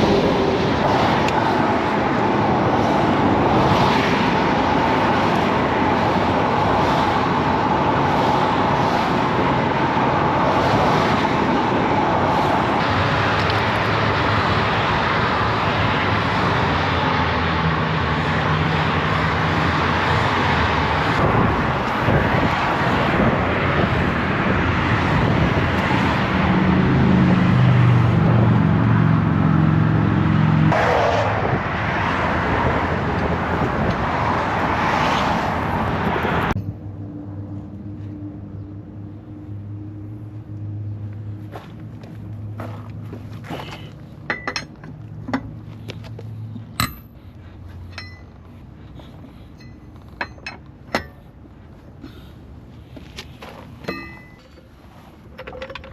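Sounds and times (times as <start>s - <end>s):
road noise: 0.0s - 55.9s.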